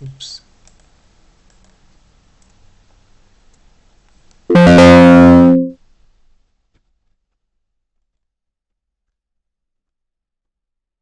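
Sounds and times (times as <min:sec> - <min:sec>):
synthesizer chord: 0:04.5 - 0:05.7.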